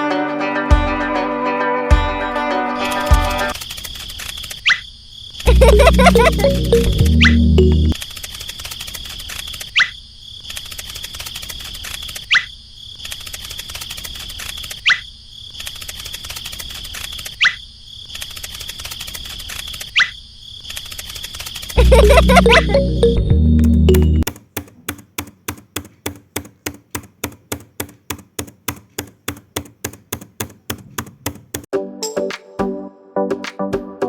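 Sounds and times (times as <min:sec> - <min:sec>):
background music: 0:00.0 - 0:03.5, 0:05.5 - 0:08.0, 0:21.8 - 0:24.2, 0:31.7 - 0:34.0
insects trilling: 0:03.5 - 0:05.5, 0:08.0 - 0:21.8.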